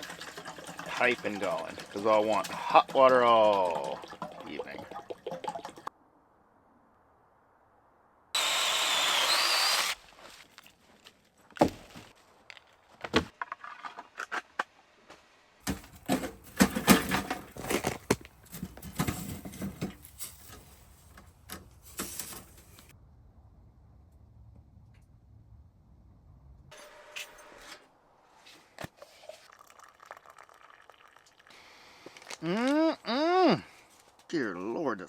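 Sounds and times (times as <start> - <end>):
water poured into metal pot: 0.0 - 5.9, 29.2 - 31.5.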